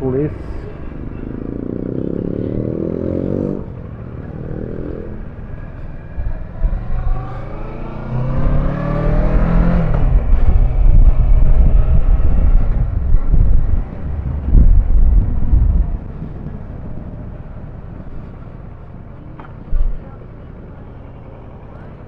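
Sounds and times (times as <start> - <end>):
vehicle engine accelerating: 0.4 - 22.0
wind rush on microphone: 5.0 - 20.4.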